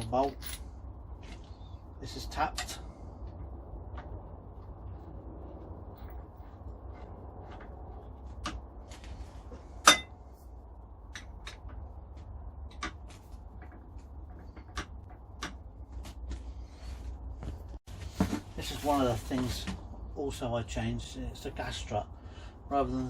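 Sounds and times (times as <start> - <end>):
metal parts clinking: 0.0 - 0.7
steady low hum: 0.0 - 23.0.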